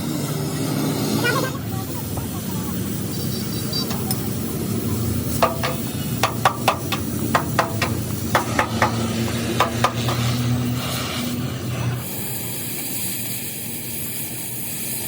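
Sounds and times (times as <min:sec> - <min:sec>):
steady low hum: 0:00.0 - 0:12.5
metal taps ringing: 0:05.4 - 0:10.4.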